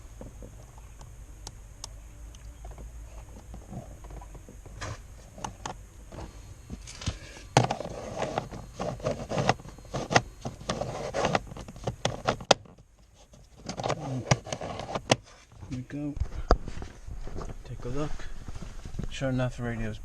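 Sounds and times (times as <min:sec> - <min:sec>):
rustling handling noise: 0:02.7 - 0:19.9.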